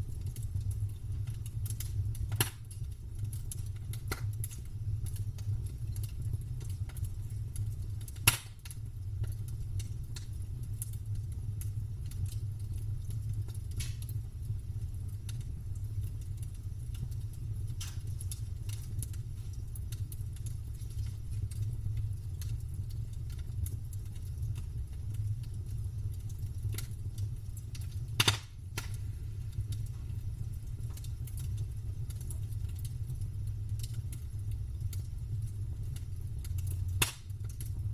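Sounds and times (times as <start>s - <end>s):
campfire crackling: 0.0s - 37.9s
loud pop: 28.2s - 28.9s.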